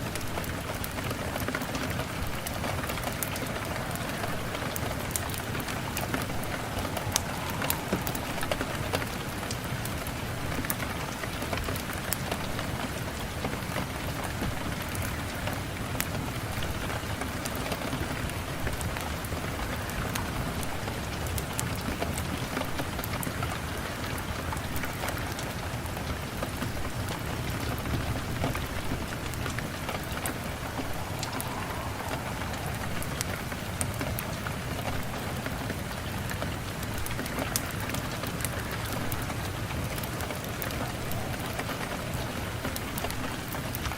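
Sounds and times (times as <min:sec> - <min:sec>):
steady rain falling: 0:00.0 - 0:43.9.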